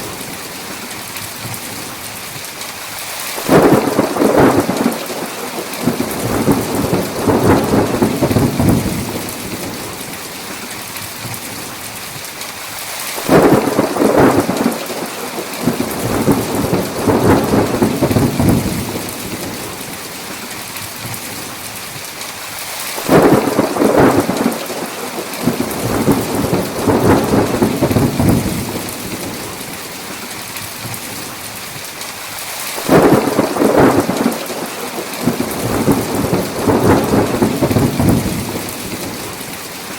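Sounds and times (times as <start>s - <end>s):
heavy rain: 0.0s - 39.9s
rolling thunder: 3.4s - 10.0s, 13.2s - 19.8s, 23.0s - 29.5s, 32.8s - 39.5s.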